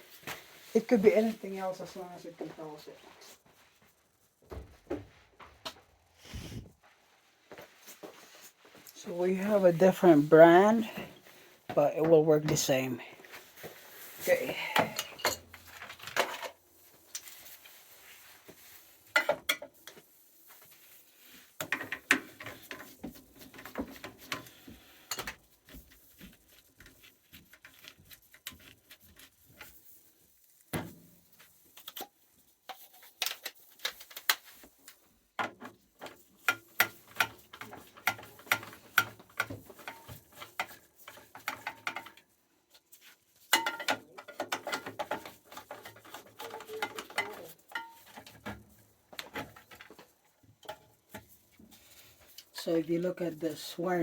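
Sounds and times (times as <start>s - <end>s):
hand tools clicking and rattling: 43.5s - 51.4s.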